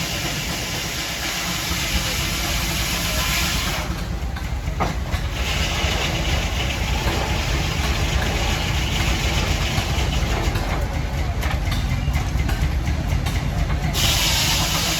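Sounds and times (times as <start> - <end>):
hiss: 0.0 - 4.0, 14.0 - 14.9
engine running at low speed: 0.0 - 14.9.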